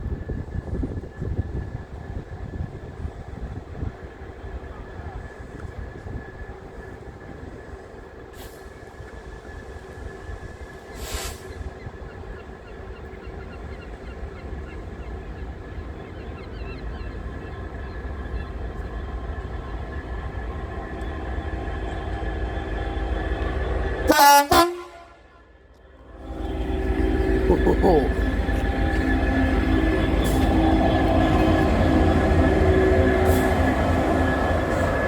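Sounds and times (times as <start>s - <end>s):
train rumbling: 0.0s - 35.0s
short hiss: 10.9s - 11.6s
train horn blast: 21.0s - 35.0s.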